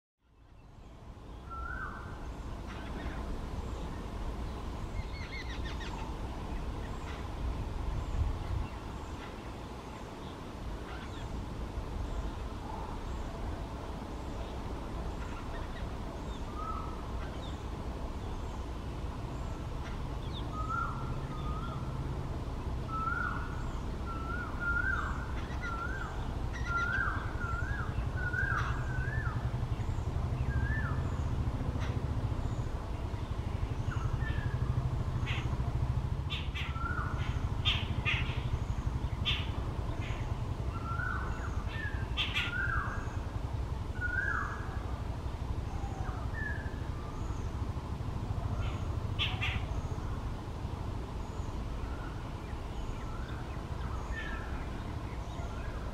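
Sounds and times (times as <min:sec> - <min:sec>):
steady low hum: 0:00.3 - 0:55.9
bird calling: 0:01.4 - 0:04.0, 0:04.9 - 0:07.4, 0:15.1 - 0:17.6, 0:19.4 - 0:22.0, 0:22.9 - 0:32.7, 0:33.6 - 0:35.7, 0:36.3 - 0:43.3, 0:44.0 - 0:44.9, 0:48.4 - 0:50.2.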